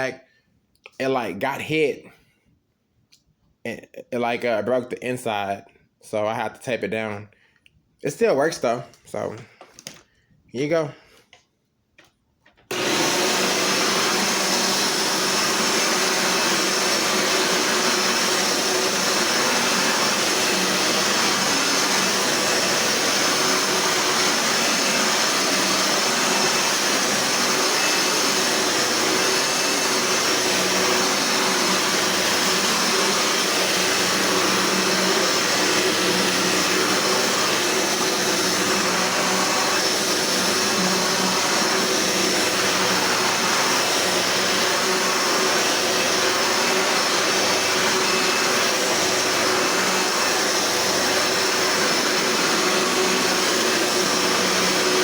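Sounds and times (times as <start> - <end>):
vacuum cleaner motor running: 12.7 - 55.0.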